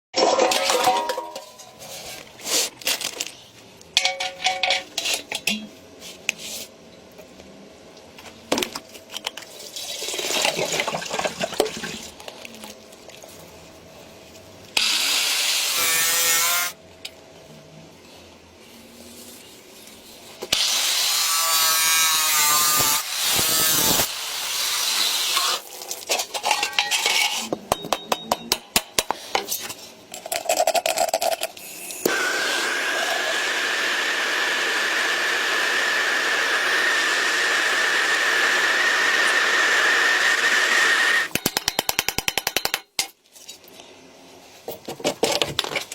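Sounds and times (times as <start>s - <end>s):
tools tapping and scraping metal: 4.0s - 5.8s, 26.0s - 32.0s, 41.3s - 43.6s.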